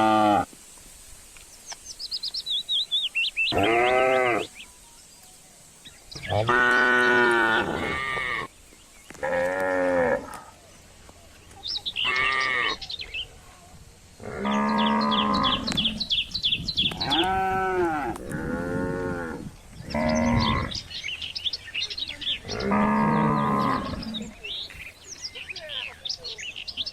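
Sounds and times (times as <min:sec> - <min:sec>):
cattle mooing: 0:06.2 - 0:08.5, 0:14.2 - 0:15.8, 0:17.0 - 0:20.8, 0:22.5 - 0:24.4.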